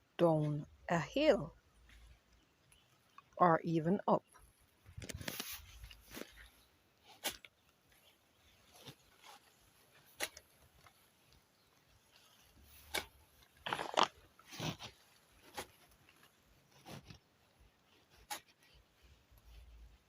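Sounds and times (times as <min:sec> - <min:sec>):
crunching impacts on dry ground: 0:12.7 - 0:16.2.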